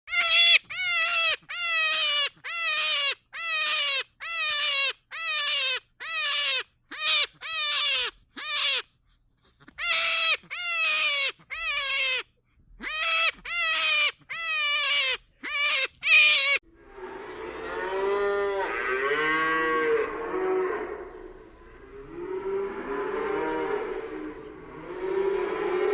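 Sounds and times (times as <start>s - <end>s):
animal calling in falling calls: 0.1s - 8.9s, 9.7s - 16.6s.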